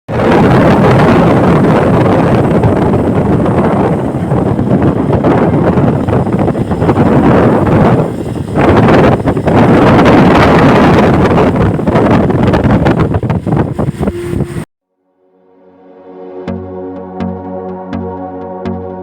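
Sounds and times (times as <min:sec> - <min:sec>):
wind buffeting microphone: 0:00.1 - 0:14.7.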